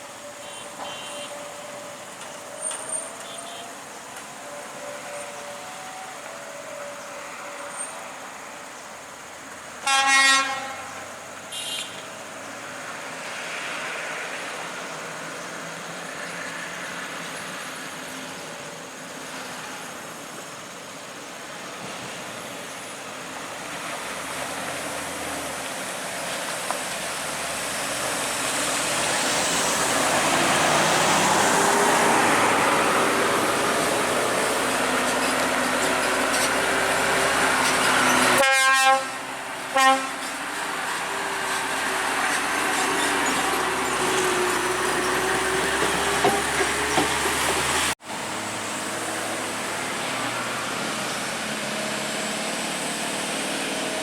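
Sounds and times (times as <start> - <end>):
heavy truck passing: 0.0 - 20.1, 21.6 - 54.0
road traffic: 0.0 - 54.0
truck horn blast: 0.4 - 1.6, 9.8 - 12.1, 38.0 - 40.3.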